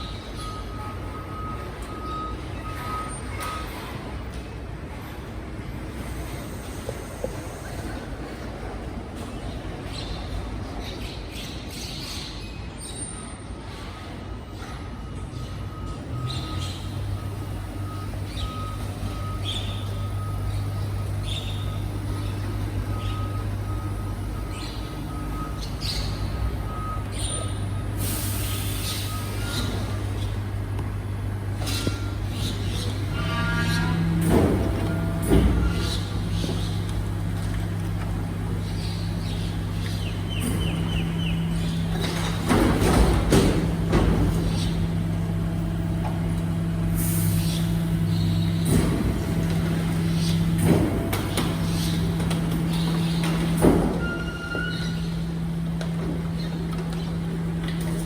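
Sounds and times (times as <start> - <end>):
reversing alarm beeping: 0.0 - 4.0, 14.4 - 58.0
low truck hum: 15.2 - 58.0.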